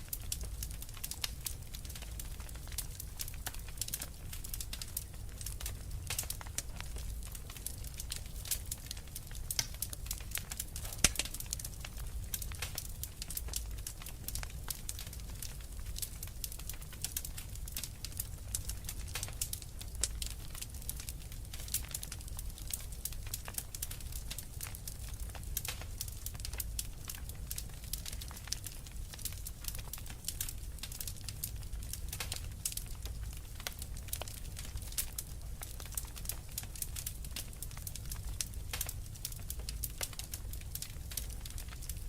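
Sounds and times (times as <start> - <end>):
fire crackling and popping: 0.0 - 42.0
low rumble of fire: 0.0 - 42.0.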